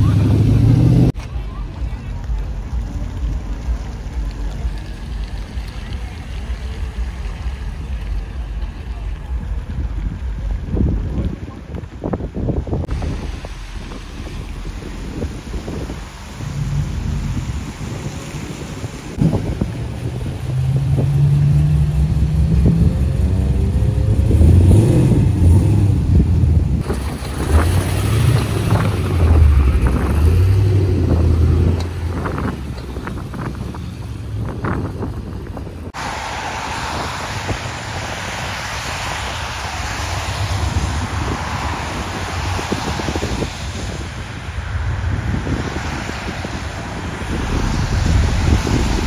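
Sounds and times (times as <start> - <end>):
car engine revving: 0.0 - 1.2, 12.8 - 32.6, 45.1 - 49.0
wind on microphone: 0.0 - 49.0.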